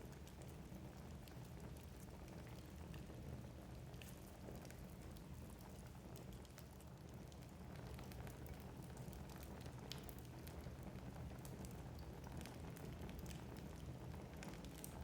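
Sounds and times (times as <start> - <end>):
rumble of flames: 0.0 - 15.0
logs crackling and popping: 3.8 - 10.7, 11.3 - 15.0.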